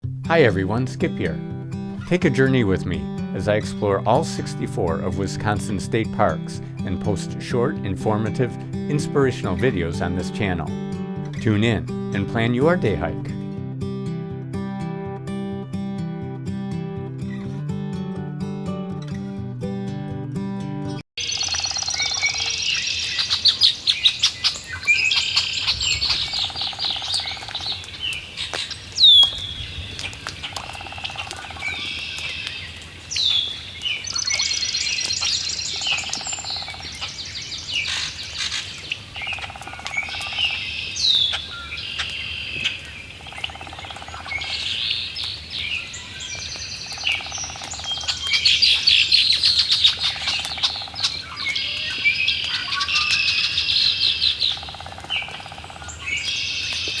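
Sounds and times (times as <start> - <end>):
birds singing and calling: 21.2 - 57.0
lower bird call: 21.2 - 57.0.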